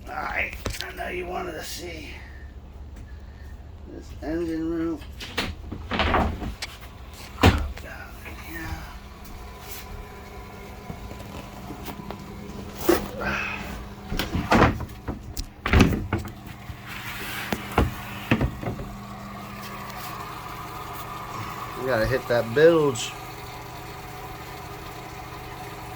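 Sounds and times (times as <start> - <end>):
steady mechanical hum: 0.0 - 25.9
hatch knocks and clunks: 17.6 - 18.9.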